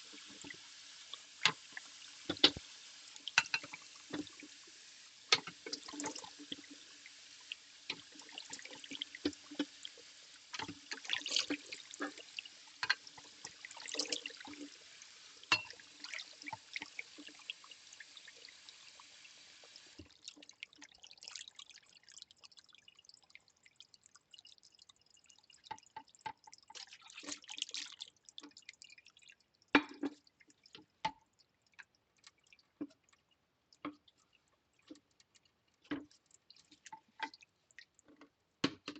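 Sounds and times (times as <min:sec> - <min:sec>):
water dripping: 0:00.0 - 0:38.9
water splashing: 0:05.3 - 0:19.0.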